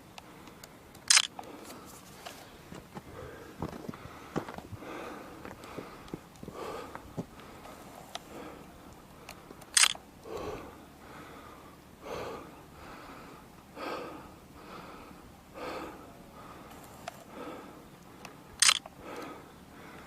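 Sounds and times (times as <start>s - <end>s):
person breathing hard: 1.4s - 9.6s, 10.2s - 20.0s
sharp loud click: 18.6s - 18.8s.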